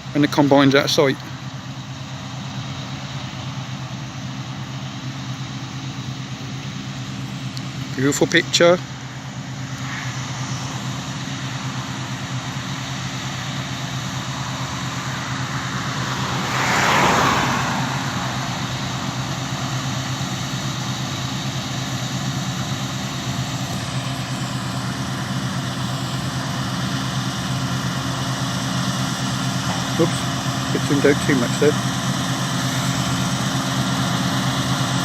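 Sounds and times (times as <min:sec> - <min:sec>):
diesel engine drone: 0:00.0 - 0:35.0
whooshing swell: 0:08.9 - 0:21.2.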